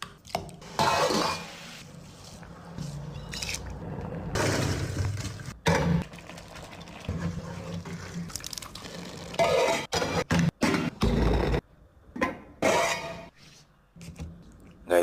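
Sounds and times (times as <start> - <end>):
liquid pouring into a pot: 6.0 - 9.4.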